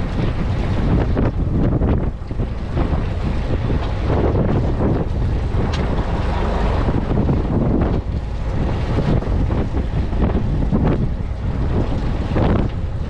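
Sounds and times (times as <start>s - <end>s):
boat and water: 0.0s - 13.0s
wind buffeting microphone: 0.0s - 13.0s.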